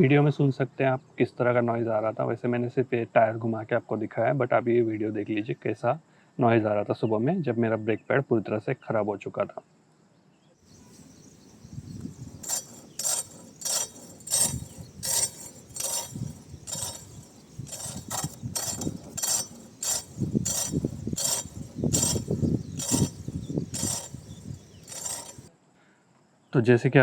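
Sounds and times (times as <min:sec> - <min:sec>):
metal brake scraping on disc: 0:10.7 - 0:25.5.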